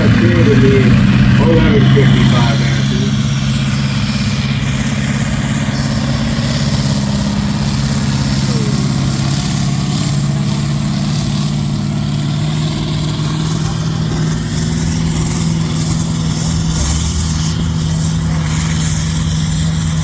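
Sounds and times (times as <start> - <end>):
deep low note: 0.0 - 4.8
tractor engine running: 0.0 - 20.0.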